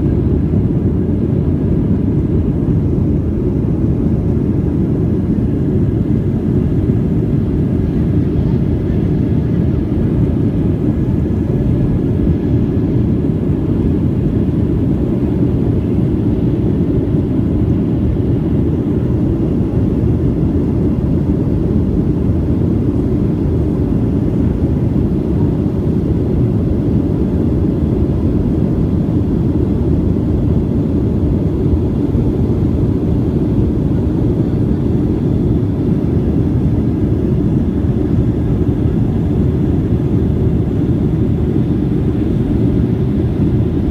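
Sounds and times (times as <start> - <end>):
airliner cabin engine rumble: 0.0 - 43.9.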